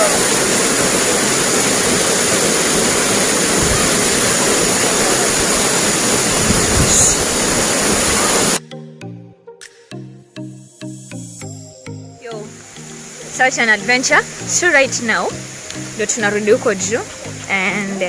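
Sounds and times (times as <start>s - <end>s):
waterfall pouring: 0.0s - 8.6s, 12.4s - 18.0s.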